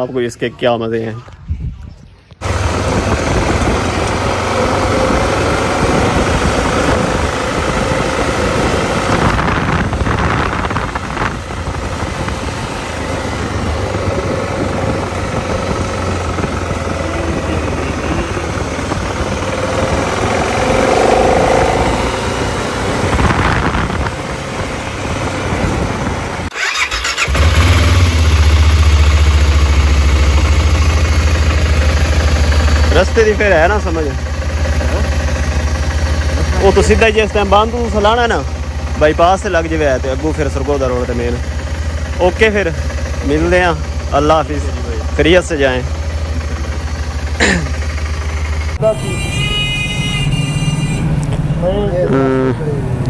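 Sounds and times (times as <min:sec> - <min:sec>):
motorcycle engine running: 0:02.4 - 0:51.0, 0:51.7 - 0:52.8
rushing noise: 0:17.5 - 0:24.1.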